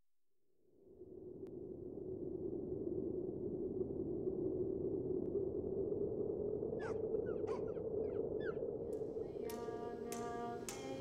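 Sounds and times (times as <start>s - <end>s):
bird calls gliding in pitch: 6.8s - 10.6s
low rushing drone: 8.9s - 11.0s.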